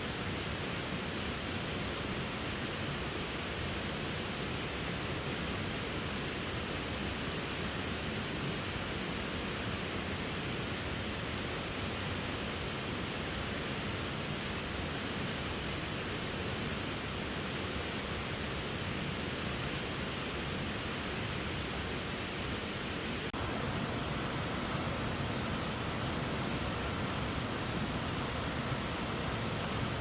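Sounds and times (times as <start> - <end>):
waterfall rushing: 22.4 - 30.0.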